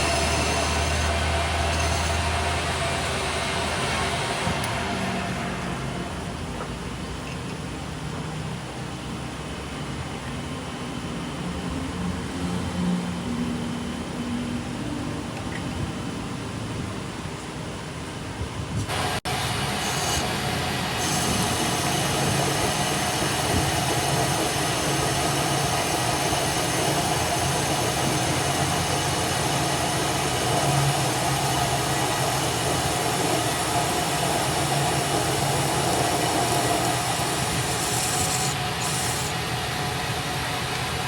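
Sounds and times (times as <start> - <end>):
metalworking machinery hiss: 0.0 - 7.0, 18.9 - 41.0.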